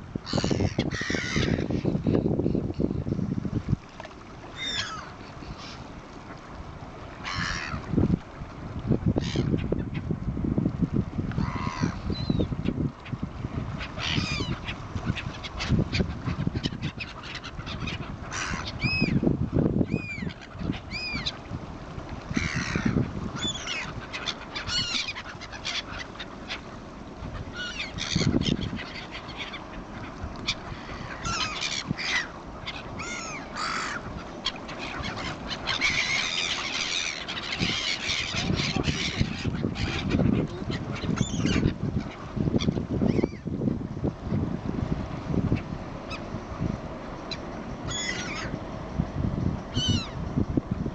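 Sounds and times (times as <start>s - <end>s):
birds calling: 0.3s - 2.6s, 4.5s - 5.7s, 11.4s - 12.8s, 13.8s - 19.3s, 19.9s - 21.5s, 22.3s - 43.5s, 45.5s - 50.5s.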